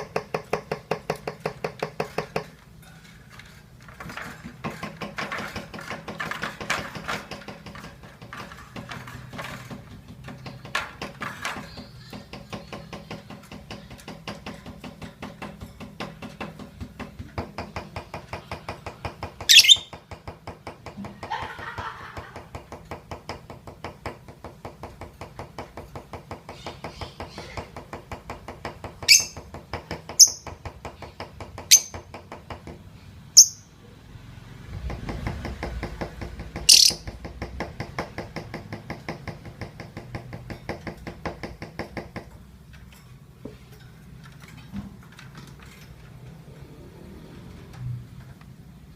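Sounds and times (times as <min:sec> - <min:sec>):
shrill bird squeaks: 0:19.5 - 0:19.9, 0:29.1 - 0:29.4, 0:36.7 - 0:37.0.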